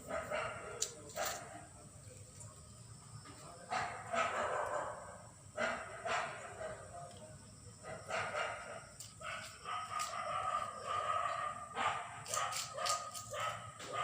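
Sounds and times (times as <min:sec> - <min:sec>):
small dogs yipping and barking: 0:08.1 - 0:14.0.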